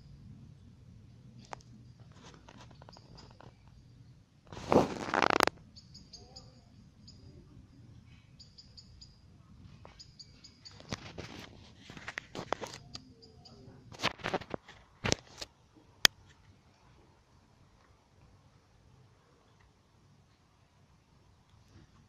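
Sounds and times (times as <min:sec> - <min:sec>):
rustling: 0:01.4 - 0:03.8, 0:04.5 - 0:05.6, 0:09.6 - 0:13.0, 0:13.9 - 0:15.5
small birds chirping: 0:01.6 - 0:14.0.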